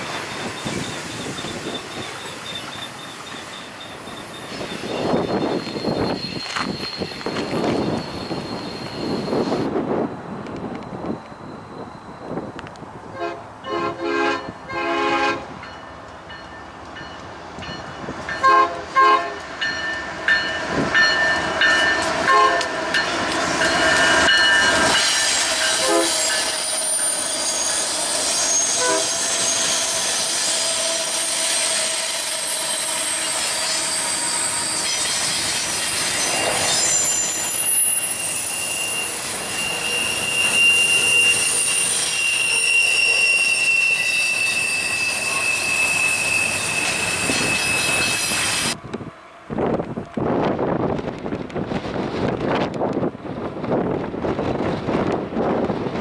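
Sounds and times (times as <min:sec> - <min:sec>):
wheel squeal: 0:00.0 - 0:09.7, 0:23.8 - 0:48.8
freight train rolling past: 0:00.0 - 0:56.0
locomotive horn blasts: 0:13.2 - 0:15.6, 0:18.4 - 0:19.5, 0:22.2 - 0:22.8, 0:25.8 - 0:26.5, 0:28.7 - 0:29.2.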